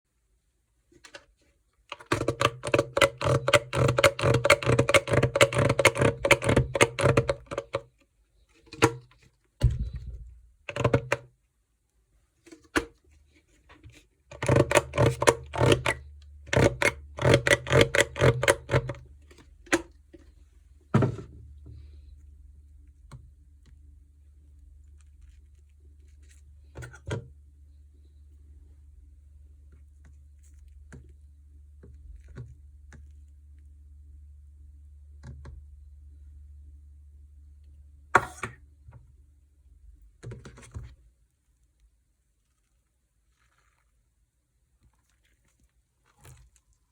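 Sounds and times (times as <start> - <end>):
heavier thump: 9.6 - 10.4.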